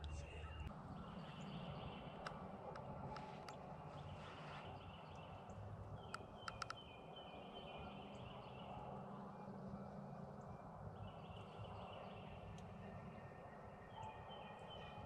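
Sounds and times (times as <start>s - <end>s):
distant birdsong: 0.0s - 15.0s
quick sharp clicks: 6.1s - 6.8s.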